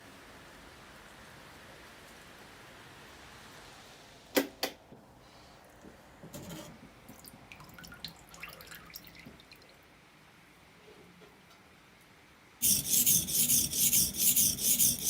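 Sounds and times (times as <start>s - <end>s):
rain hiss: 0.0s - 4.3s
taps and drips: 7.1s - 9.8s.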